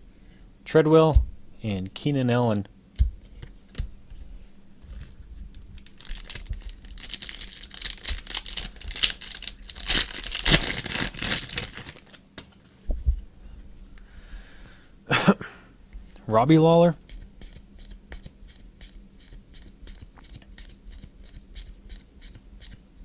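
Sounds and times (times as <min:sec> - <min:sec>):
cards being handled: 0:03.0 - 0:12.6
plastic wrapper tearing and crinkling: 0:05.8 - 0:12.2.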